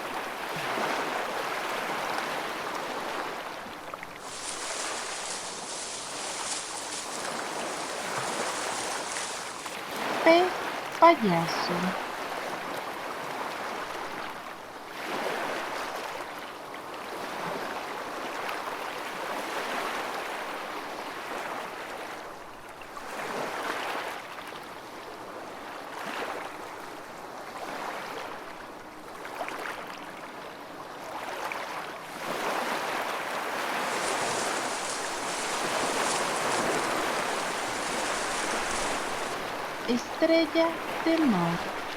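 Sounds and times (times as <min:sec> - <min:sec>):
moving water washing: 0:04.1 - 0:11.9, 0:33.5 - 0:41.4.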